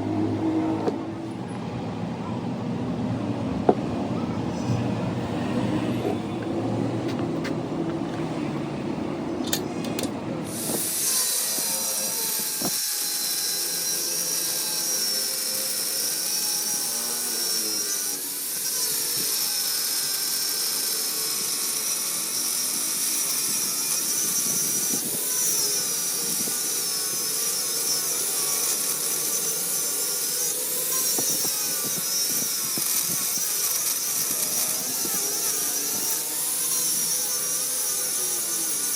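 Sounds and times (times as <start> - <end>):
metal cutting power tool whine: 9.5 - 38.9.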